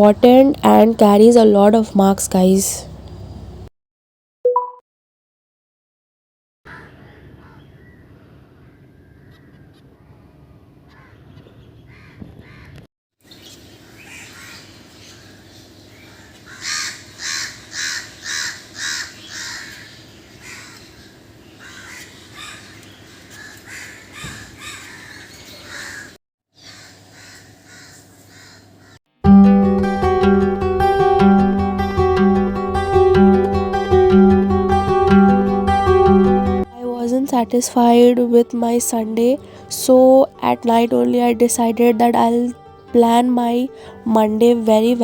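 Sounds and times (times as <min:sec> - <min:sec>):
low background hum: 0:00.0 - 0:03.7
crow cawing: 0:16.5 - 0:20.9, 0:21.6 - 0:29.0.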